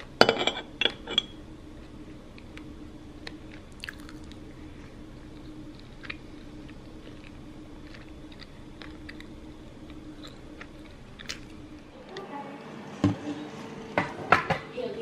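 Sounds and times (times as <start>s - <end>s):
steady low hum: 0.0s - 15.0s
person chewing bread: 1.7s - 11.8s.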